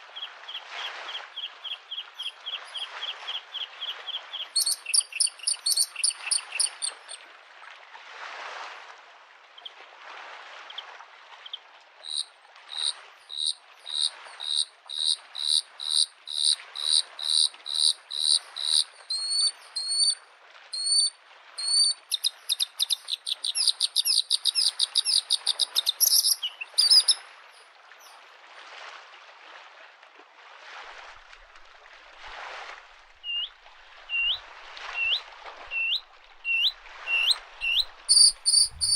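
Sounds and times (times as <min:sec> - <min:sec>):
lake waves lapping at shore: 0:00.0 - 0:38.9
bird singing: 0:00.2 - 0:07.2, 0:12.1 - 0:20.2, 0:20.8 - 0:27.2, 0:33.3 - 0:33.5, 0:34.1 - 0:34.4, 0:35.0 - 0:38.9.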